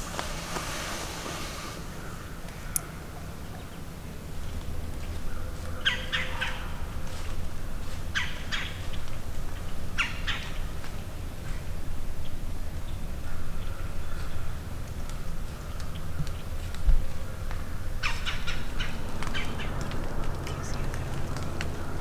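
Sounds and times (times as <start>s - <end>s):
low rumble: 10.6s - 22.0s.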